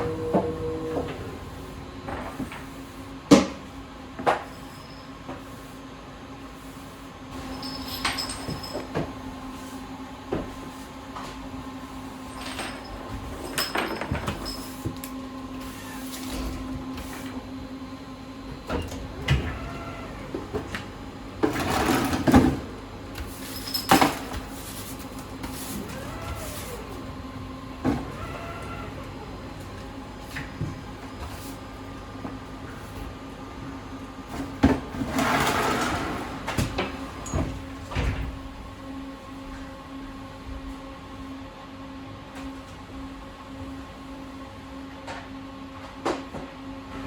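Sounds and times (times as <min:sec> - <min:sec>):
steady electrical hum: 0:00.0 - 0:42.0.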